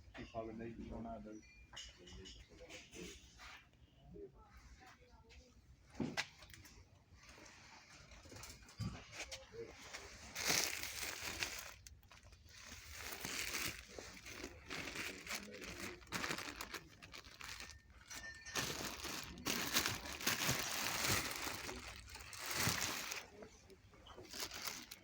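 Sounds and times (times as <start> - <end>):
rustling and crinkling: 5.9 - 25.0.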